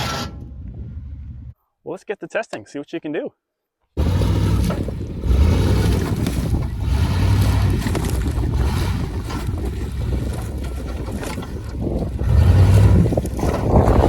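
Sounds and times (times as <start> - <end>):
rough driving noise: 4.0 - 14.0
truck engine running: 4.0 - 14.0.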